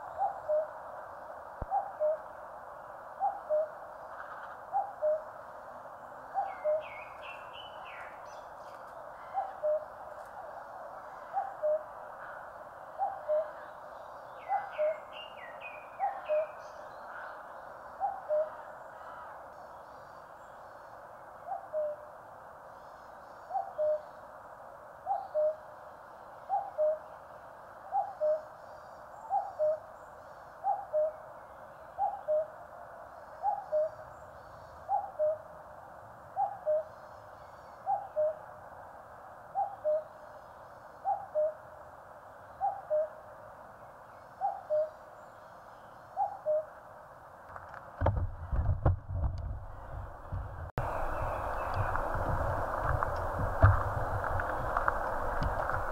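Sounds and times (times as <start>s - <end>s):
cuckoo calling: 1.7s - 2.3s, 3.2s - 5.3s, 6.4s - 8.1s, 9.2s - 10.0s, 11.3s - 11.9s, 13.0s - 13.6s, 18.0s - 18.6s, 21.5s - 22.0s, 23.5s - 24.1s, 25.1s - 25.6s, 26.5s - 27.0s, 32.0s - 32.6s, 33.4s - 34.0s, 37.8s - 38.4s, 41.0s - 41.6s, 44.4s - 45.0s, 46.2s - 46.8s
small birds chirping and trilling: 50.8s - 53.4s.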